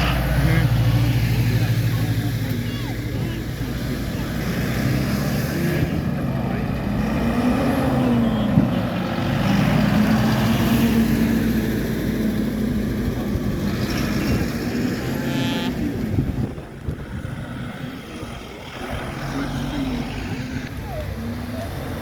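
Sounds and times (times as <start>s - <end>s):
tractor engines running: 0.0s - 22.0s.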